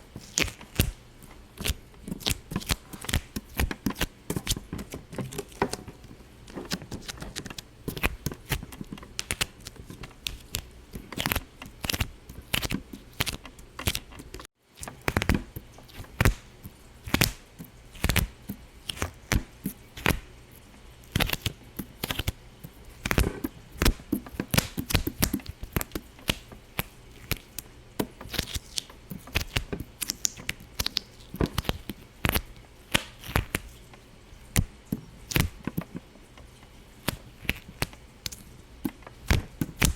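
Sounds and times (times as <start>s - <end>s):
sharp pops and clicks: 23.0s - 33.7s, 34.5s - 39.9s.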